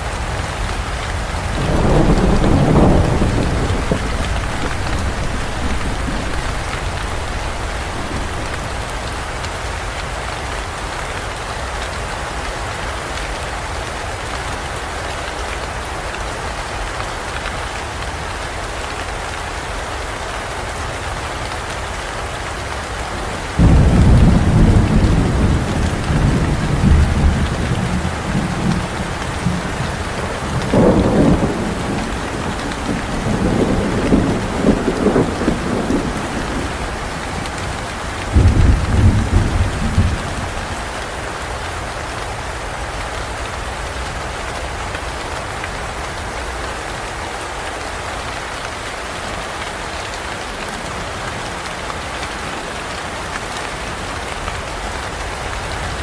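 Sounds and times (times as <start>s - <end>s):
heavy rain: 0.0s - 56.0s
thunder rumbling: 1.3s - 9.4s, 23.6s - 41.3s.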